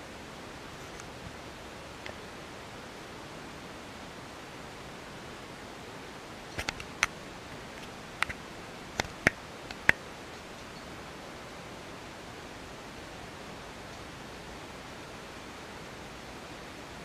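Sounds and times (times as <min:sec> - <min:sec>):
wind past a window: 0:00.0 - 0:17.0
sharp irregular clicks: 0:06.5 - 0:08.4, 0:09.0 - 0:10.0.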